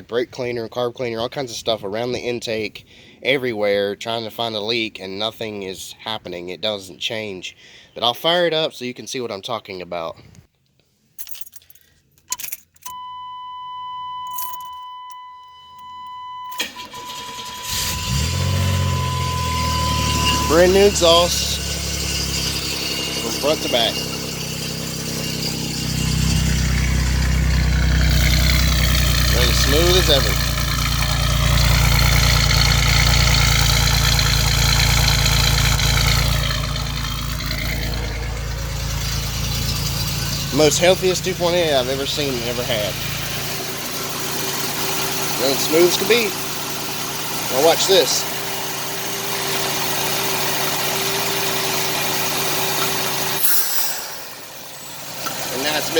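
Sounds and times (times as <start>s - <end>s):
high warning chime: 12.9s - 44.0s, 45.3s - 46.5s
car engine cranking and idling: 14.2s - 55.9s
high whine: 18.0s - 44.1s, 52.8s - 55.9s.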